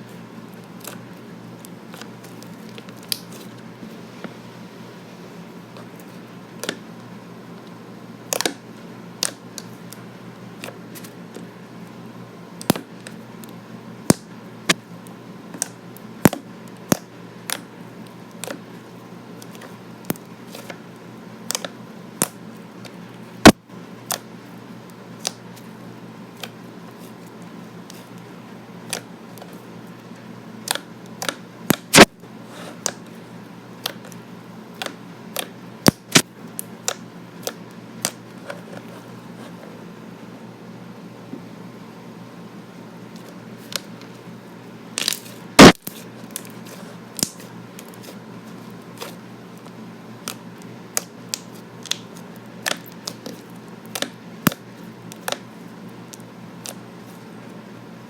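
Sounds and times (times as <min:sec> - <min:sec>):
steady low hum: 0:00.0 - 0:58.0
sticky slime pops and clicks: 0:30.6 - 0:32.1, 0:34.8 - 0:36.2, 0:45.0 - 0:45.9, 0:47.2 - 0:47.5.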